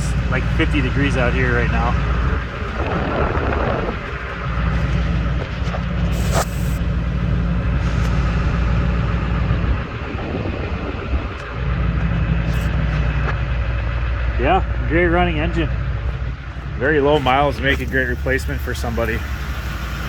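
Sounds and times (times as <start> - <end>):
diesel engine idling exhaust rumble: 0.0 - 20.0.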